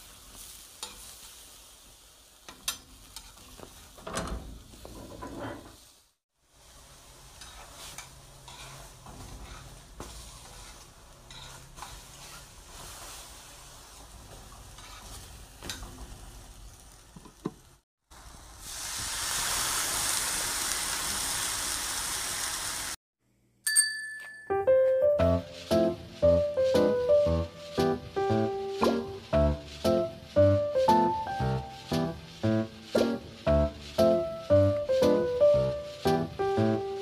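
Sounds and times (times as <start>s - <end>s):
food sizzling in a pan: 0.0s - 23.0s, 25.2s - 37.0s
short bright ding: 23.7s - 25.0s.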